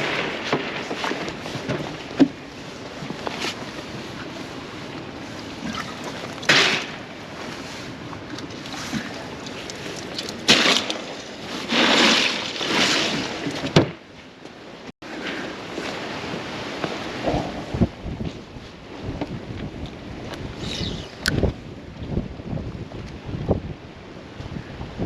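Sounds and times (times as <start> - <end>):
water sloshing against boat hull: 0.3 - 14.6
wind noise on microphone: 15.2 - 25.0.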